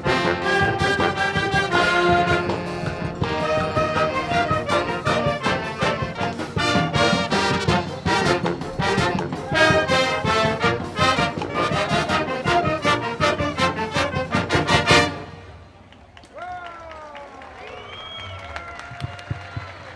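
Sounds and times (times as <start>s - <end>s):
brass and percussion band playing: 0.0s - 15.7s.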